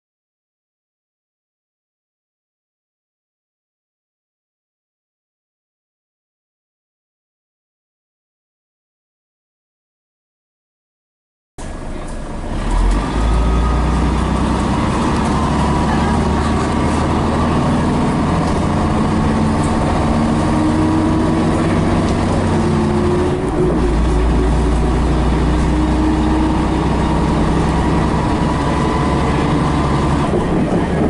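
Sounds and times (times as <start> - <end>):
bus diesel engine pulling hard: 11.6 - 31.0.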